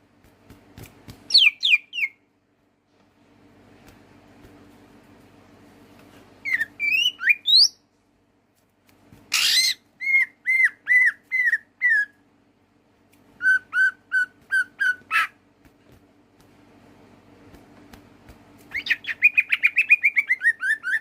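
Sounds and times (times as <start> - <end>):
faint steady hum: 0.0 - 21.0
bird whistling: 1.3 - 2.2, 6.4 - 7.8, 9.4 - 12.1, 13.4 - 15.3, 18.7 - 21.0.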